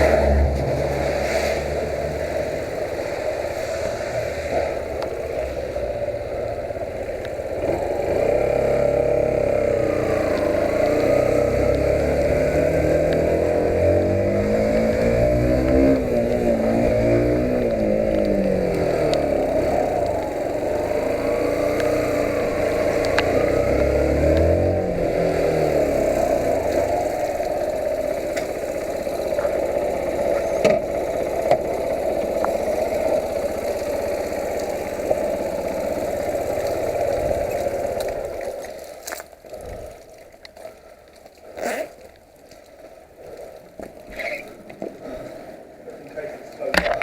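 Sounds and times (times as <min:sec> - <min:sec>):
motorcycle engine running: 0:00.0 - 0:45.2.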